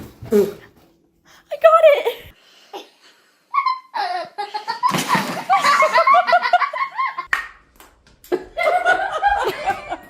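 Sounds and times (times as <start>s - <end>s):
people laughing: 4.0s - 7.3s, 8.3s - 10.0s.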